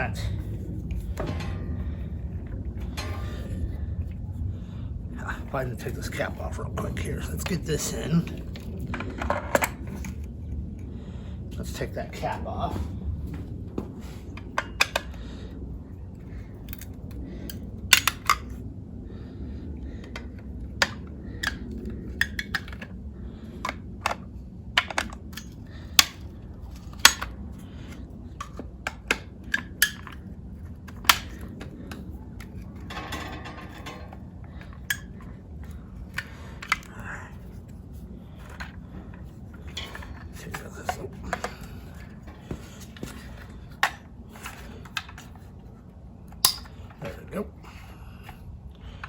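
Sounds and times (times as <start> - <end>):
metallic clicks of hand tools: 46.3 - 46.8.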